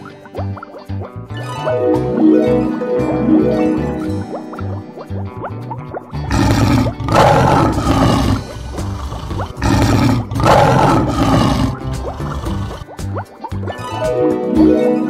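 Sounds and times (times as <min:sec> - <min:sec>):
background music: 0:00.0 - 0:15.0
lion roaring: 0:06.3 - 0:12.9.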